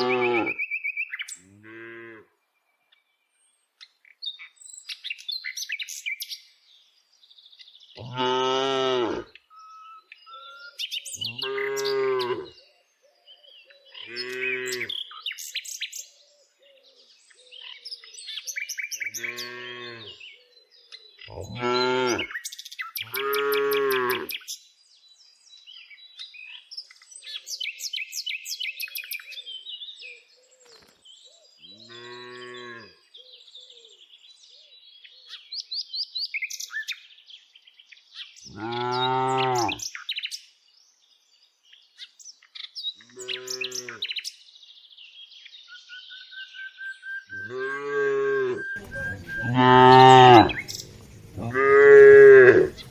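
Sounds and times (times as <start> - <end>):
cows mooing: 0.0 - 0.5, 8.0 - 9.3, 11.3 - 12.5, 14.1 - 14.9, 19.2 - 20.2, 21.3 - 22.3, 23.1 - 24.3, 31.9 - 32.9, 38.6 - 39.8, 47.4 - 52.9
small birds chirping: 0.0 - 1.6, 2.8 - 52.9.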